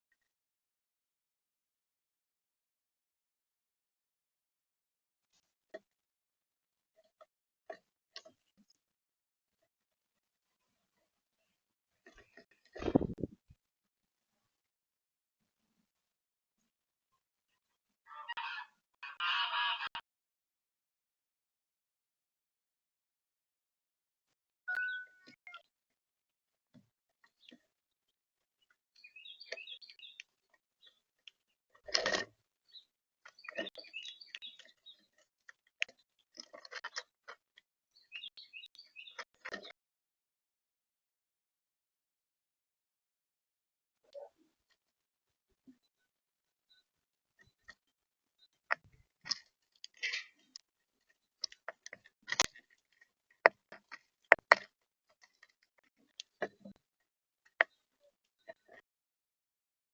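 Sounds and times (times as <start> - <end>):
small birds chirping: 27.2 - 27.9, 28.6 - 39.8
birds pecking seed: 28.6 - 37.4, 48.7 - 56.8
clicks and taps: 53.4 - 54.7.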